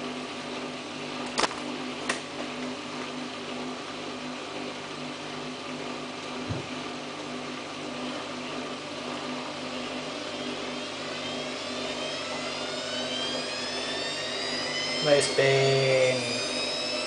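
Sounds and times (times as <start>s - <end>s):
washing machine motor hum: 0.0s - 17.0s
rising drum whine: 6.3s - 17.0s
low thump: 6.4s - 6.8s.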